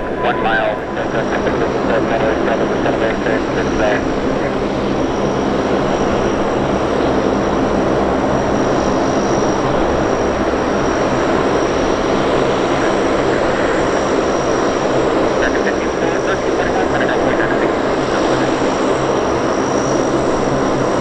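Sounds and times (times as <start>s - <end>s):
faint high whine: 0.0s - 20.6s
turboprop engines droning: 0.0s - 21.0s.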